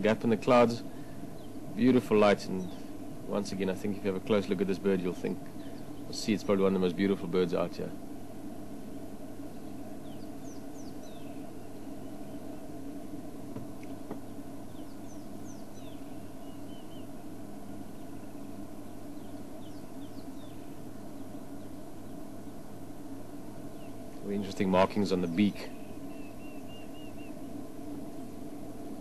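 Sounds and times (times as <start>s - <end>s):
steady low hum: 0.0s - 29.0s
faint bird chirps and whistles: 0.8s - 3.0s, 5.2s - 6.4s, 8.8s - 13.0s, 13.8s - 22.6s, 23.6s - 28.0s.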